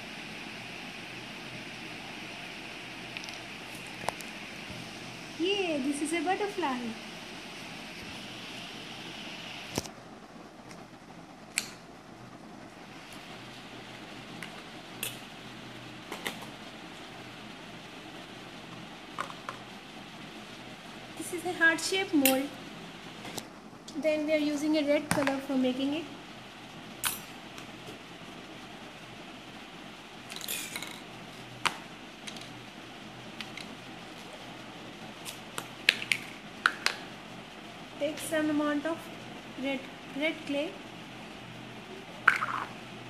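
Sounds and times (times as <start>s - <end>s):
steady background hum: 0.0s - 43.0s.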